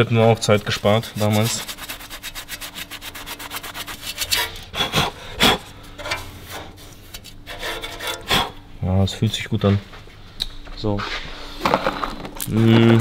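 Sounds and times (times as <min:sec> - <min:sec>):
metal scraping on metal: 0:00.4 - 0:08.7.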